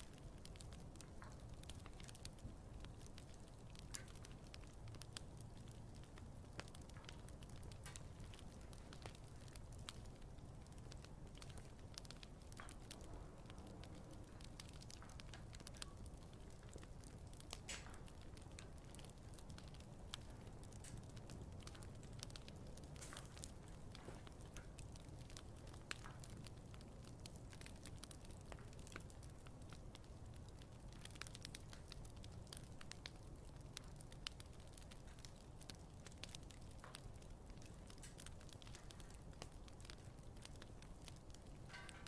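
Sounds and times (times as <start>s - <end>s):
campfire crackling: 0.0s - 42.0s
low rumble of burning: 0.0s - 42.0s.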